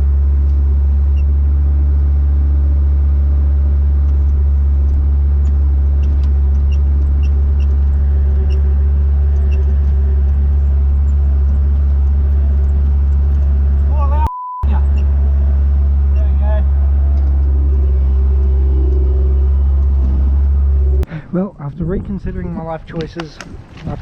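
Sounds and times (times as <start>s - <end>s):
diesel engine droning: 0.0s - 22.7s.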